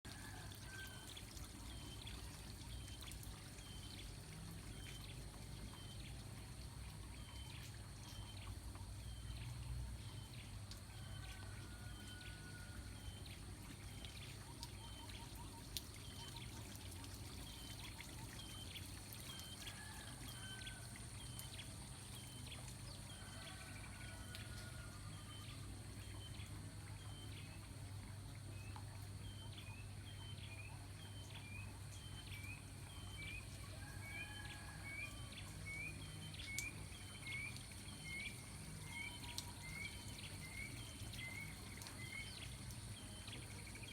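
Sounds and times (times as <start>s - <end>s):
water pouring and trickling: 0.0s - 43.9s.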